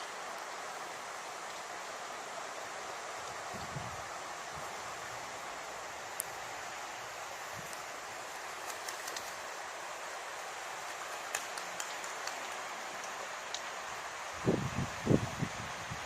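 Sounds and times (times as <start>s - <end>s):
outdoor background hiss: 0.0s - 16.0s
faint light ticks: 6.1s - 6.4s, 11.2s - 13.7s.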